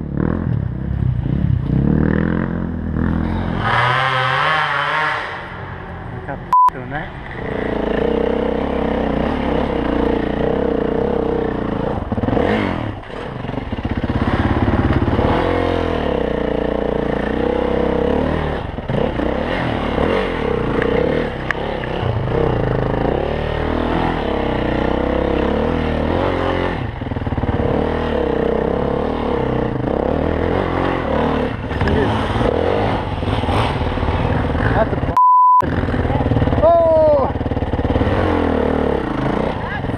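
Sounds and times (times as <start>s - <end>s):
bike rattling and scraping: 7.0s - 39.9s
dirt bike engine running hard: 7.2s - 39.9s.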